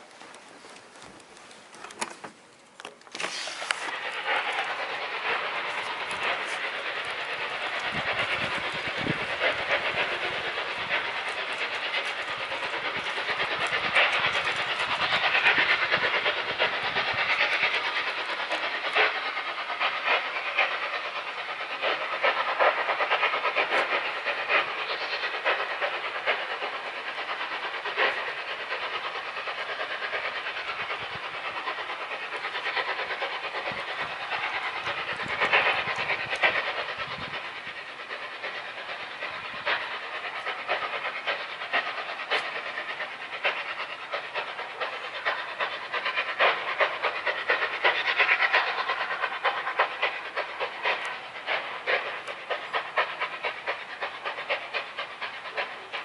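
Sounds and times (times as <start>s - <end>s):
scattered crackles: 0.0s - 16.4s
loud steady hissing: 0.0s - 56.0s.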